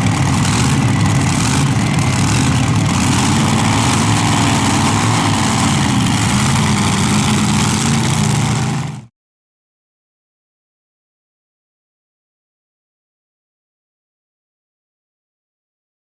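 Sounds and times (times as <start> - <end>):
tractor engine droning: 0.0 - 9.1.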